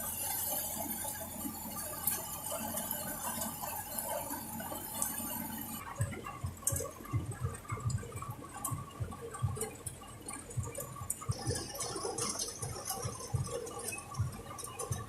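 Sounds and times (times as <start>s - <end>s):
irregular low thuds: 5.8s - 15.0s.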